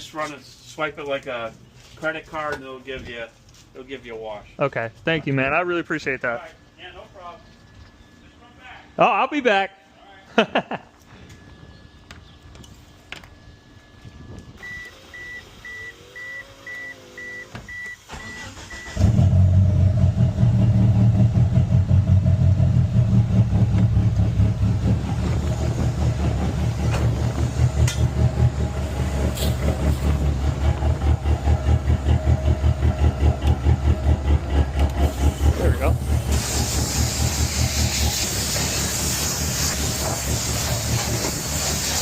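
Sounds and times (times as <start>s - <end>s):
car engine starting and idling: 14.6s - 42.0s.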